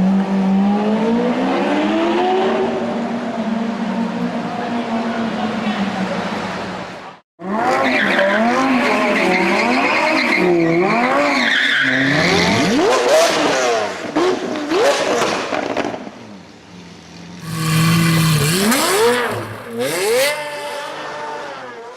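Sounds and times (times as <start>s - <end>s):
sports car engine revving: 17.4s - 21.6s.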